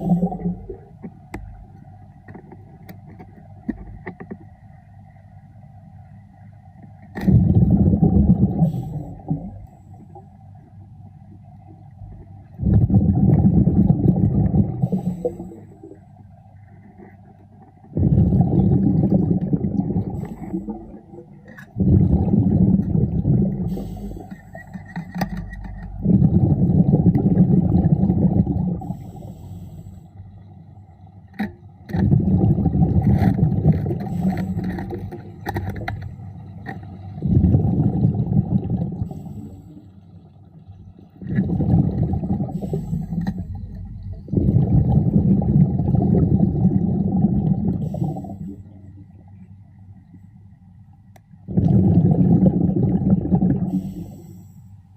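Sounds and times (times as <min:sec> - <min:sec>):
underwater exhaled bubbles rumbling: 0:00.0 - 0:04.6, 0:07.1 - 0:10.4, 0:11.3 - 0:50.1, 0:51.4 - 0:54.3
faint small clicks: 0:51.1 - 0:51.4.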